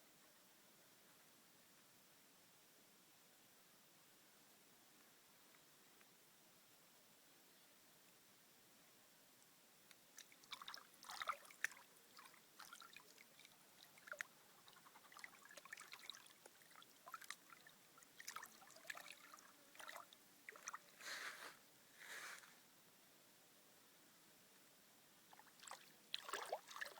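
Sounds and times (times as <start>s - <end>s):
water splashing and trickling: 10.1s - 21.6s, 25.3s - 26.9s
water sloshing: 10.2s - 21.6s, 25.3s - 26.9s.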